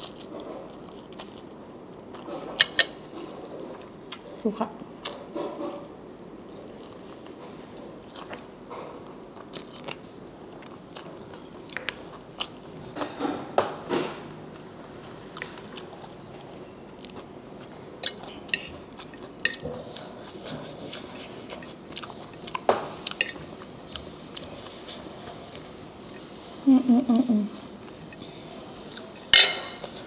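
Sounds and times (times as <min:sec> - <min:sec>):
person chewing crunchy food: 0:00.0 - 0:04.2, 0:05.0 - 0:12.8, 0:14.6 - 0:26.4.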